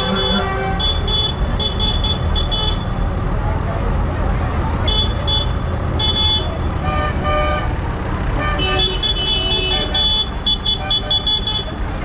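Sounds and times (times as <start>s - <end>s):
horn toots: 0.0s - 2.8s
tractor engines rumbling: 0.0s - 12.0s.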